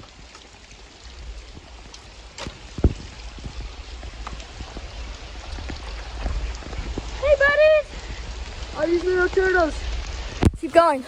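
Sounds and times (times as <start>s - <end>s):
rain falling: 0.0s - 11.0s
water pouring and trickling: 0.0s - 11.0s
loud thump: 2.4s - 3.2s.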